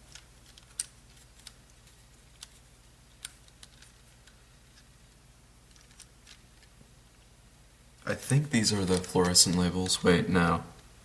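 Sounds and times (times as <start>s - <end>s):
low steady hum: 0.0s - 11.0s
plastic puzzle clicks: 0.1s - 2.5s.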